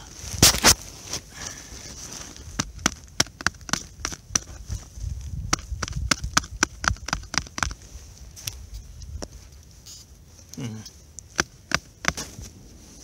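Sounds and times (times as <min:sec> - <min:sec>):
snow crunching: 0:00.1 - 0:02.8, 0:11.8 - 0:13.0.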